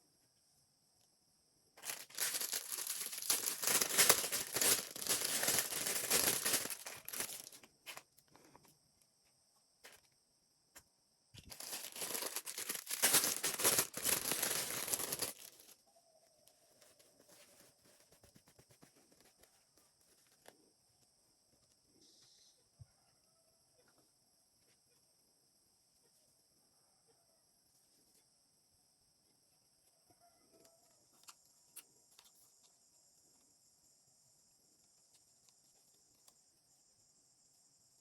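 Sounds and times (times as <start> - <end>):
packaging crinkled and torn: 1.8 - 8.0, 11.4 - 15.8.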